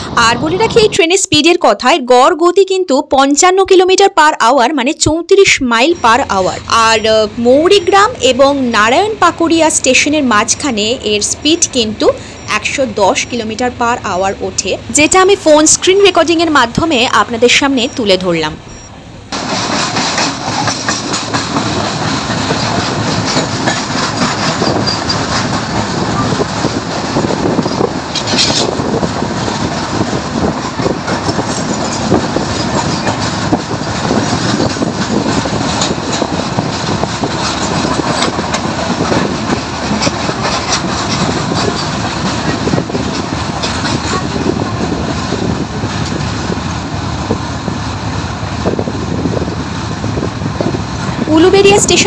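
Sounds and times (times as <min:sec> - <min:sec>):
train running on rails: 0:00.0 - 0:52.0
rapid wheel clatter: 0:19.2 - 0:47.4.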